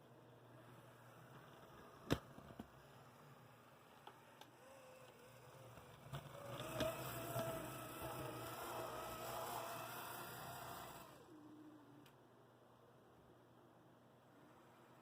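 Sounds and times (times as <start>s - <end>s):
model locomotive motor whine: 2.8s - 11.4s.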